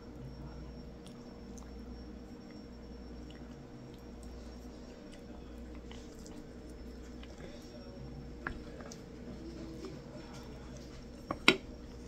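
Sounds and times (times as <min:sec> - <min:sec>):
faint room hum: 0:00.0 - 0:12.0
person chewing: 0:03.2 - 0:07.5.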